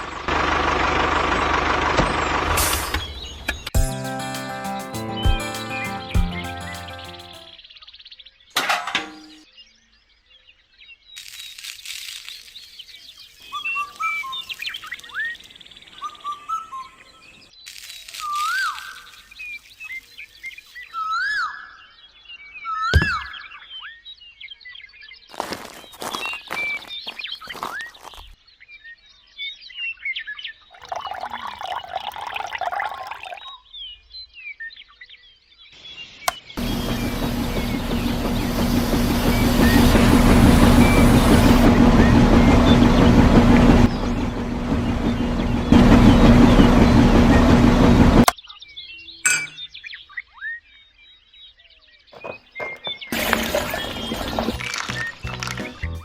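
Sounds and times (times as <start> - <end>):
birds chirping: 3.0 - 7.5, 30.8 - 33.5, 36.0 - 47.5, 52.2 - 56.0
liquid rushing noise: 30.8 - 33.5, 52.9 - 55.6
small birds chirping: 48.4 - 56.0.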